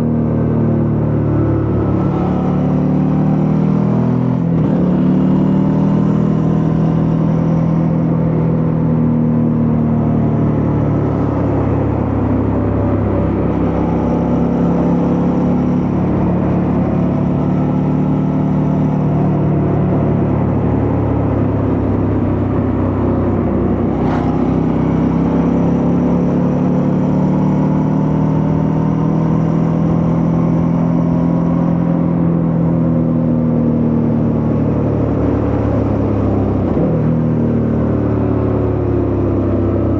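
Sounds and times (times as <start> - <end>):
motorcycle engine running: 0.0 - 29.2.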